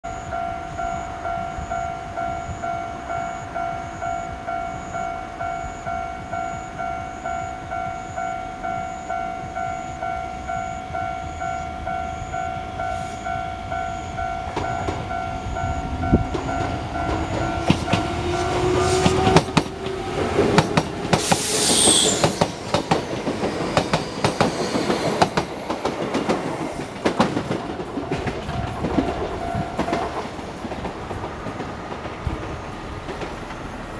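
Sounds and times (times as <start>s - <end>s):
level crossing bell ringing: 0.0s - 18.1s
wheels clacking over rail joints: 14.4s - 33.9s
brief high screech: 21.2s - 22.7s.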